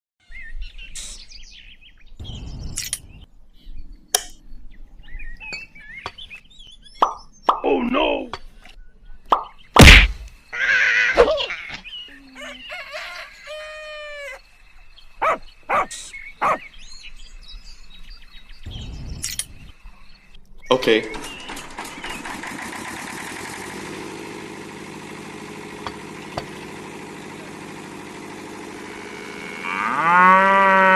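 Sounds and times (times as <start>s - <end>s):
small birds chirping: 0.2s - 22.5s
sharp click: 19.2s - 19.6s
diesel generator idling: 20.8s - 29.7s.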